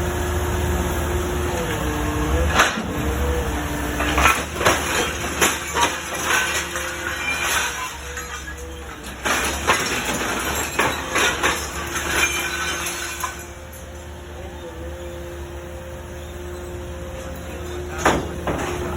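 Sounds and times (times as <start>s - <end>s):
metallic clanks and clinks: 4.0s - 14.0s.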